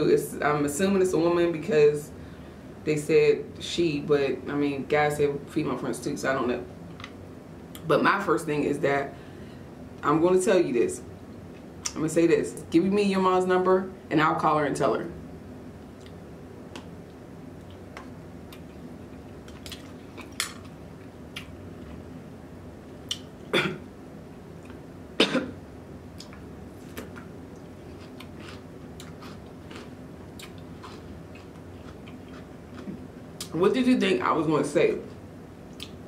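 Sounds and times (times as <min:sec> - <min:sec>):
chewing with wet clicks: 0:16.0 - 0:22.0, 0:23.0 - 0:23.3, 0:26.1 - 0:33.5, 0:35.7 - 0:36.0
short cough: 0:23.5 - 0:23.8, 0:25.2 - 0:25.6.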